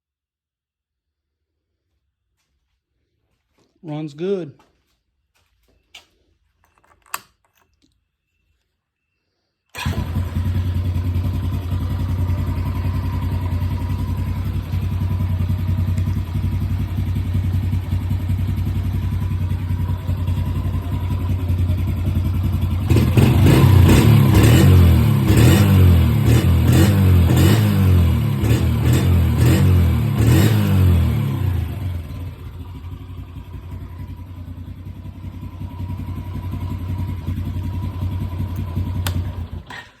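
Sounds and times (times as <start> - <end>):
atv engine running and revving: 9.8 - 39.9.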